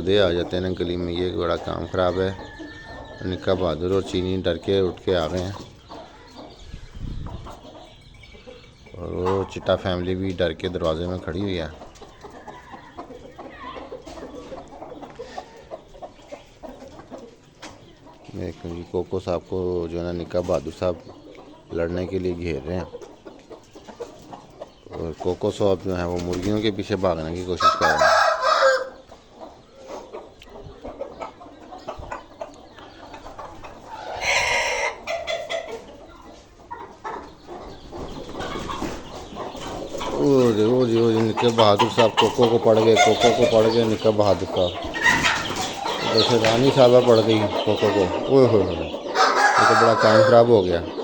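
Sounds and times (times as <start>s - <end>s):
chickens clucking: 0.0s - 51.0s
chicks cheeping: 0.0s - 51.0s
loud harsh chicken squawk: 27.6s - 29.0s, 33.8s - 35.7s, 44.8s - 46.4s, 49.0s - 50.5s.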